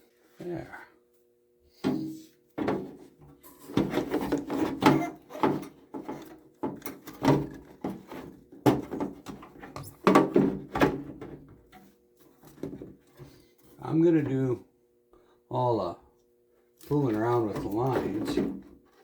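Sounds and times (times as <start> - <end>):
knocks of parts being handled: 1.8 - 13.3.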